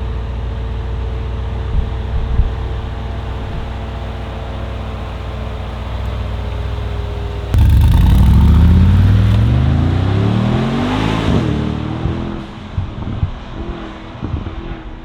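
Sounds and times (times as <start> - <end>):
engine accelerating hard: 7.6 - 11.9.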